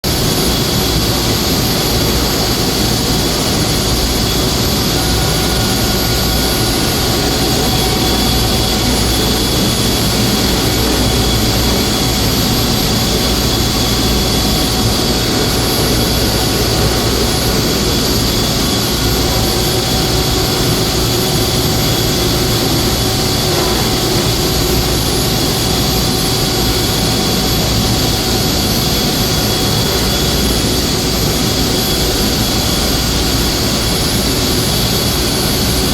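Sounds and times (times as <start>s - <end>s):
chiller machine noise: 0.0s - 35.9s
whining tones: 0.2s - 28.1s.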